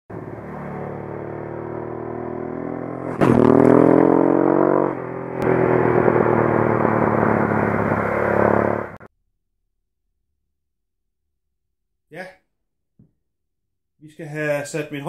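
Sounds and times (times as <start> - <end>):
motorcycle engine revving: 0.1 - 9.1.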